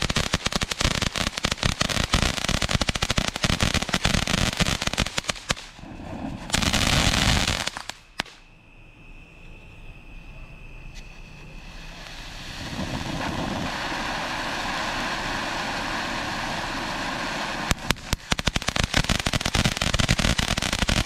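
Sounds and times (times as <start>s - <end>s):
sharp firework pops: 0.0s - 8.4s, 17.0s - 21.0s
firework fountain crackling: 0.0s - 8.5s, 11.3s - 21.0s
firework fountain hissing: 0.0s - 8.5s, 10.9s - 21.0s.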